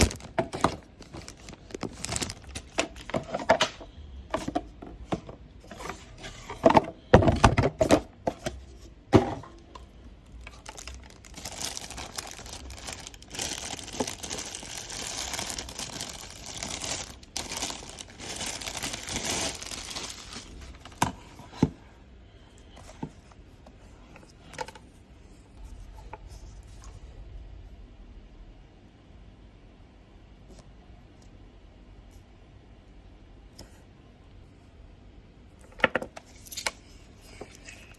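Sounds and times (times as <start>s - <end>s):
packaging rustling: 0.0s - 3.8s, 9.2s - 21.7s
packaging knocks and clicks: 0.0s - 5.4s, 10.4s - 21.7s.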